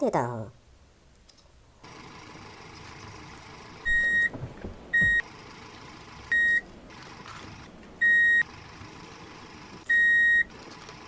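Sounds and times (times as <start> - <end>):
steady low hiss: 0.5 - 9.9
soft knocks: 3.9 - 5.2.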